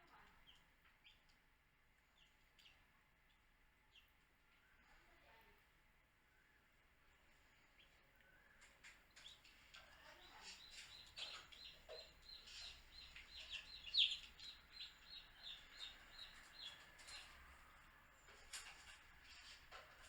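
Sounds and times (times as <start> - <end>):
baby chicks peeping: 7.7 - 17.7.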